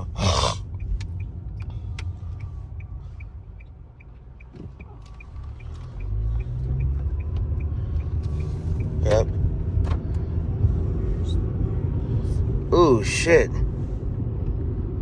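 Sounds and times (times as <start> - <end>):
car engine and road rumble: 0.0 - 15.0
light even ticking: 0.7 - 9.0.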